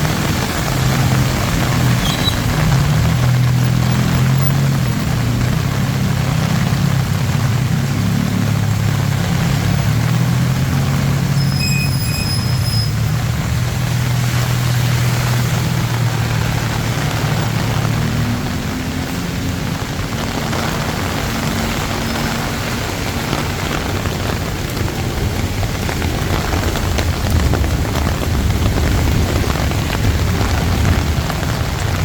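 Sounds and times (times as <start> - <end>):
rain hissing: 0.0 - 32.0
vehicle engine running: 0.0 - 32.0
high-pitched squeal: 11.3 - 13.1.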